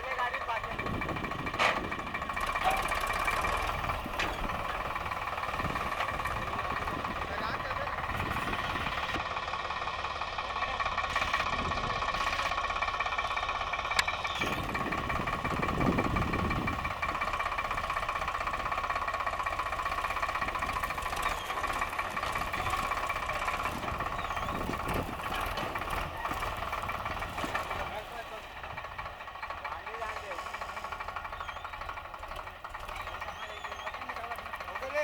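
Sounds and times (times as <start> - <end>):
tractor engine drone: 0.0 - 35.0
thresher drum whirring: 0.5 - 9.3, 13.4 - 29.6.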